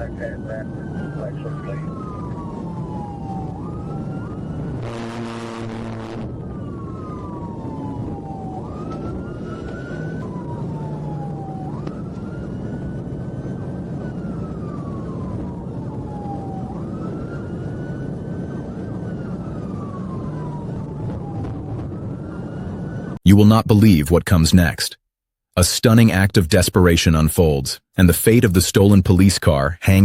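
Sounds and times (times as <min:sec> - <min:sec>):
steady low rumble: 0:00.0 - 0:05.0
police siren wailing: 0:00.0 - 0:23.3.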